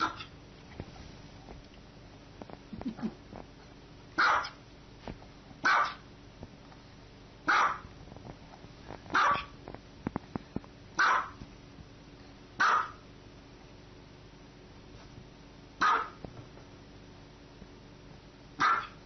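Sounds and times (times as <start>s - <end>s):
small dog barking: 0.0s - 0.3s, 4.2s - 4.6s, 5.6s - 6.1s, 7.4s - 7.9s, 9.1s - 9.6s, 11.0s - 11.4s, 12.6s - 13.0s, 15.8s - 16.2s, 18.6s - 19.0s.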